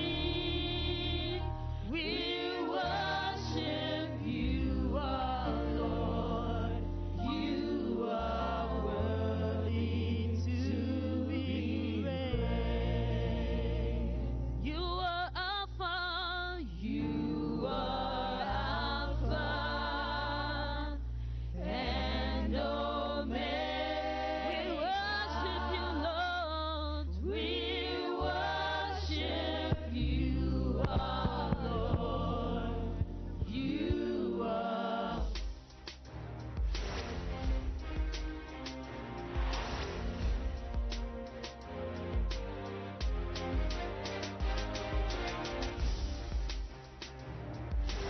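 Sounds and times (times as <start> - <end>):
voices singing with vibrato: 0.0 - 15.4, 16.6 - 35.9
sustained bass line: 0.0 - 48.0.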